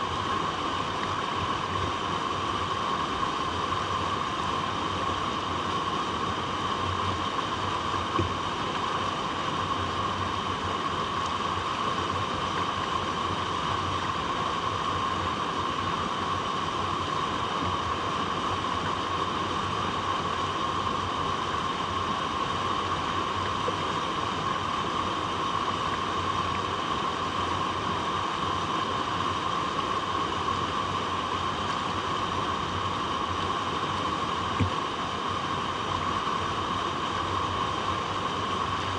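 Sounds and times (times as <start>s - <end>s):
flowing water rushing: 0.0s - 38.9s.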